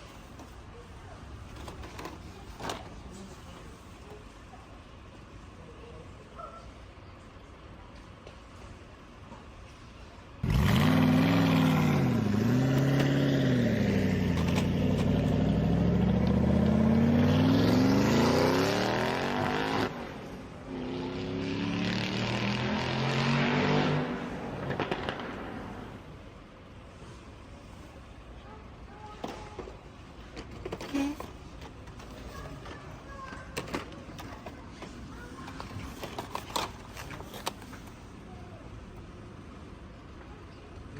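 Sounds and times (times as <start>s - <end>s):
car engine revving: 10.4s - 26.0s.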